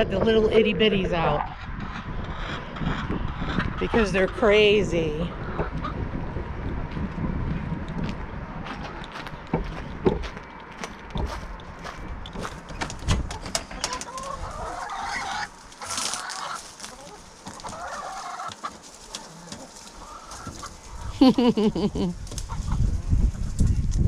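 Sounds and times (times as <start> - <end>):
chickens clucking: 0.0 - 6.0, 12.4 - 23.0.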